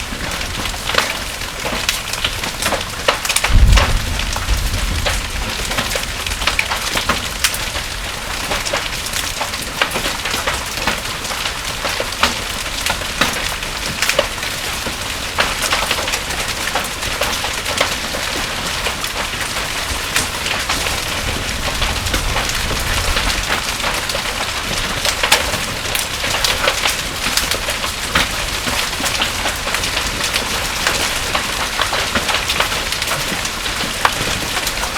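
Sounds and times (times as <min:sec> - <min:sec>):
heavy rain and hail: 0:00.0 - 0:34.9
low rumble: 0:03.5 - 0:06.8.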